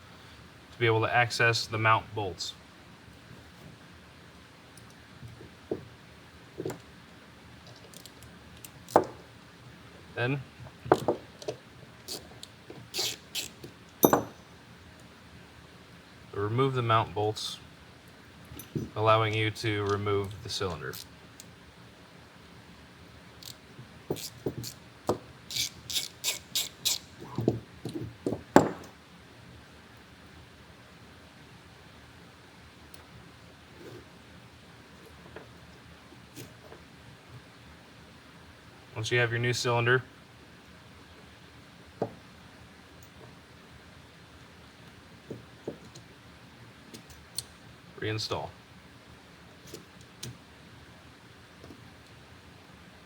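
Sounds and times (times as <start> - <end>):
tools and metal parts clicking: 7.7 - 9.0, 10.9 - 14.4, 25.5 - 27.1.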